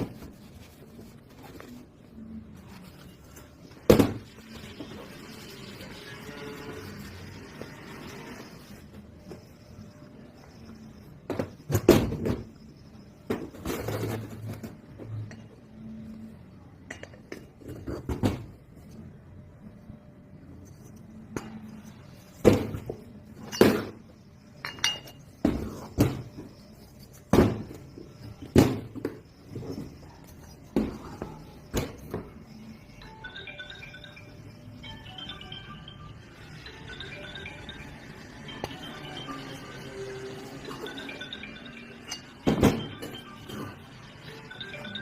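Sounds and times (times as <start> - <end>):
metal tools clinking on a workbench: 24.6 - 25.2.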